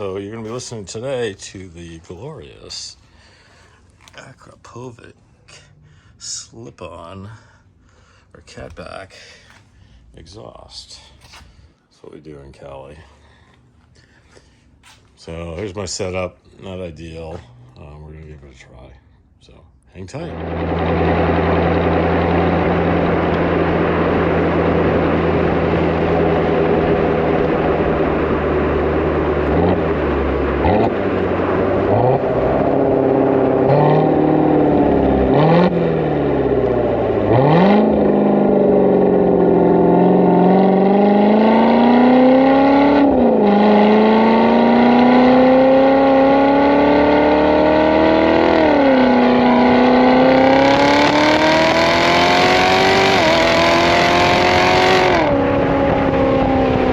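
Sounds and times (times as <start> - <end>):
sports car engine revving: 20.3 - 56.9.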